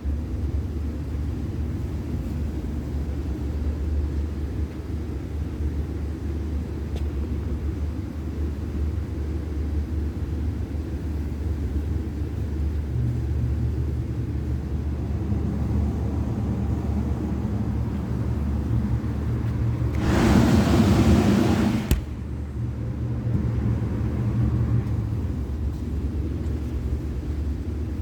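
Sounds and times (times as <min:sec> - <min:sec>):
refrigeration unit humming: 0:09.1 - 0:28.0.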